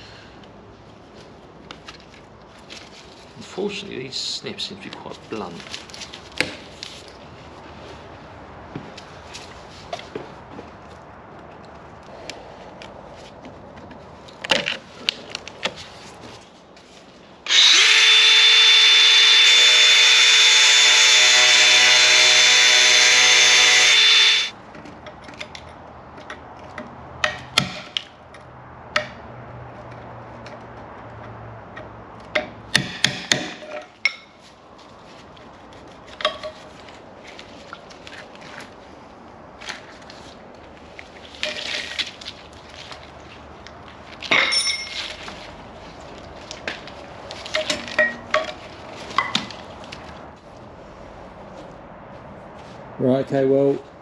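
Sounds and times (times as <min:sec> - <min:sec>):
power tool whining: 0:17.5 - 0:24.5.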